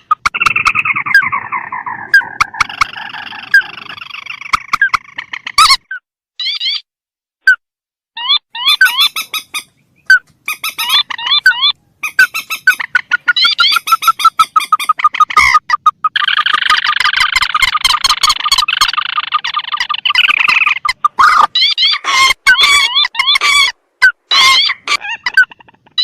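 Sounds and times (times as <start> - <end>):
recorded rail bird calls: 0.0 - 6.8, 8.2 - 26.0
dense rapid chattering: 12.6 - 23.7.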